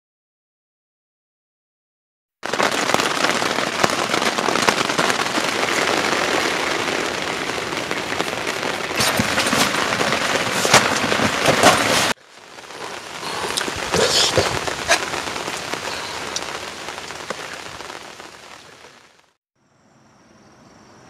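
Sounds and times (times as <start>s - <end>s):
heavy rain: 2.4s - 19.4s.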